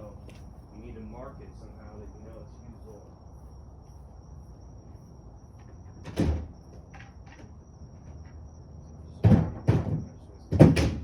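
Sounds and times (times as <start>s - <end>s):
dull thuds: 9.2s - 11.0s.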